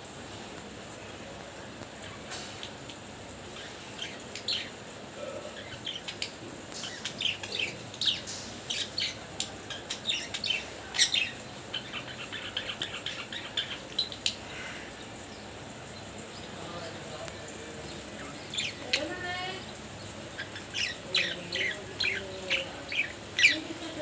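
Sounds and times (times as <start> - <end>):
budgerigars chirping and chattering: 2.0 - 24.0.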